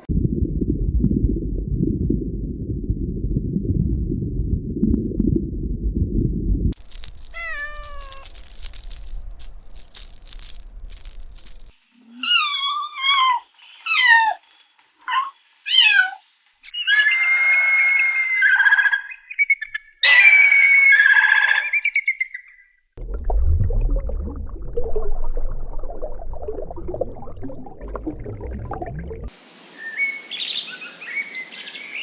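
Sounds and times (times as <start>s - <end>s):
steady low rumbling noise: 0.0s - 7.1s, 23.0s - 29.3s
kitten mewing: 7.2s - 8.5s.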